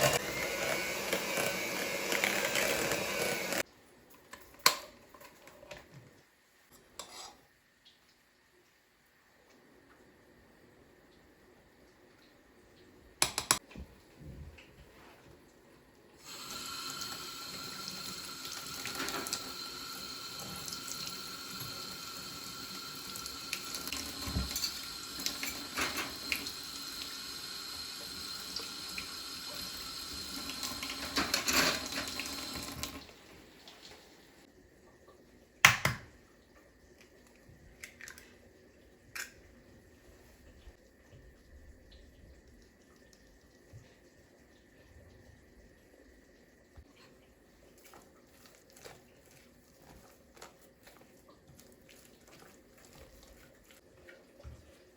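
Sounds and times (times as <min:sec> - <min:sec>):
tap running water into sink: 0:16.3 - 0:33.1.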